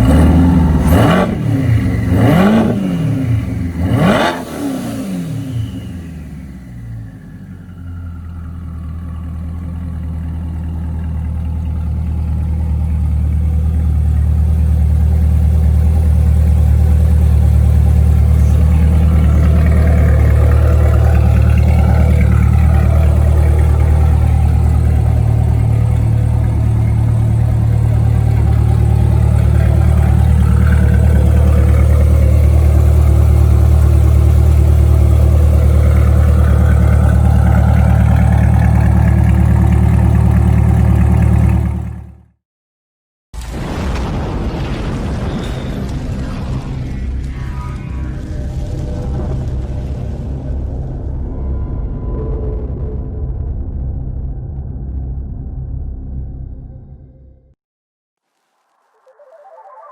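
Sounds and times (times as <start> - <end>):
car engine idling: 0.0 - 42.4.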